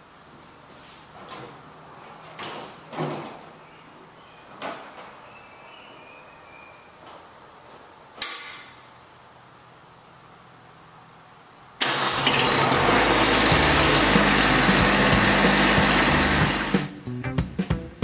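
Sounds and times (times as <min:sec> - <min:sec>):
engine starting and running: 0:11.8 - 0:16.9.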